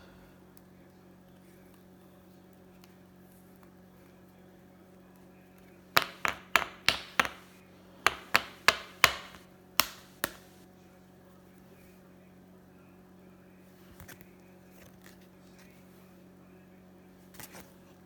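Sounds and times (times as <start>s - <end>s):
sharp knocks on hard surface: 6.0s - 7.5s, 8.1s - 10.4s.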